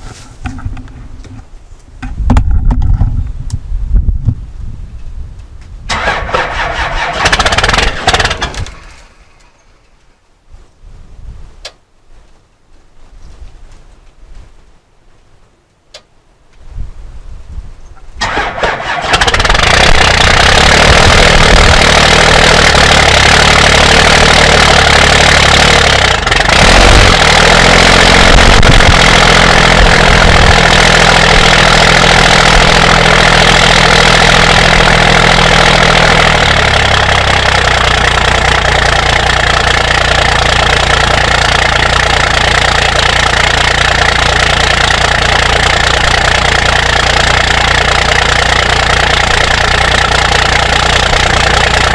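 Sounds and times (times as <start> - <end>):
diesel engine starting and idling: 5.9 - 10.0, 18.2 - 51.9.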